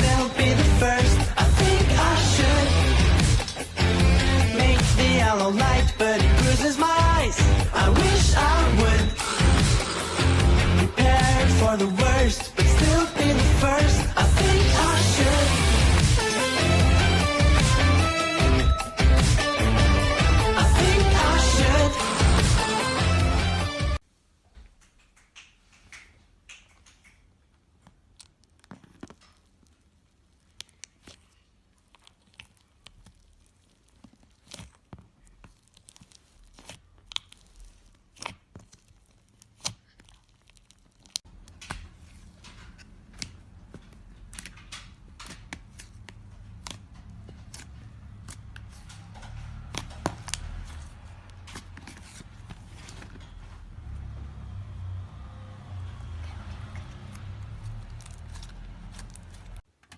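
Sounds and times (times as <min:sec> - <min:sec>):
slime crackling and popping: 0:27.8 - 0:41.3.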